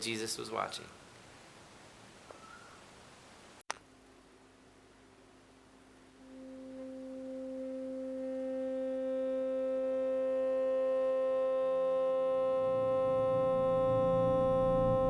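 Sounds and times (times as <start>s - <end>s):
steady pure pitched tone: 5.4s - 15.0s
faint low tone: 6.0s - 15.0s.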